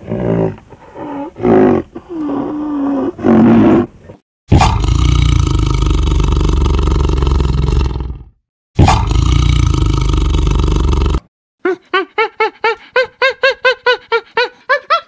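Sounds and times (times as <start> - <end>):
tiger roaring: 4.5 - 11.3.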